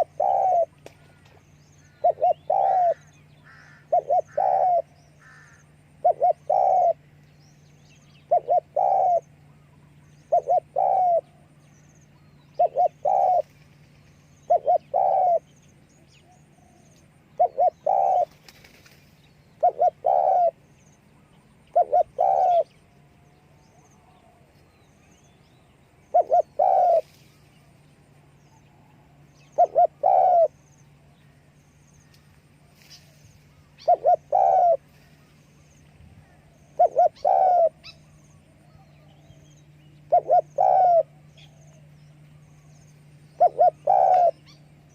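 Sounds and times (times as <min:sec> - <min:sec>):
dove cooing: 0:00.0 - 0:07.2, 0:08.2 - 0:11.7, 0:12.5 - 0:15.6, 0:16.2 - 0:18.9, 0:19.6 - 0:20.7, 0:21.7 - 0:22.8, 0:26.0 - 0:27.7, 0:29.0 - 0:31.4, 0:32.6 - 0:35.6, 0:36.2 - 0:44.9
faint steady hum: 0:00.0 - 0:44.9.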